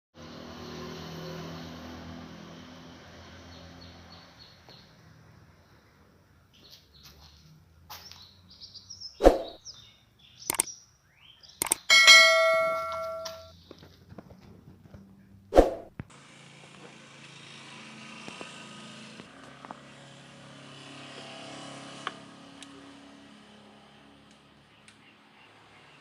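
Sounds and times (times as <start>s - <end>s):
loud ringing metallic strike: 11.9s - 13.5s
metal clanks and knocks: 11.9s - 13.5s.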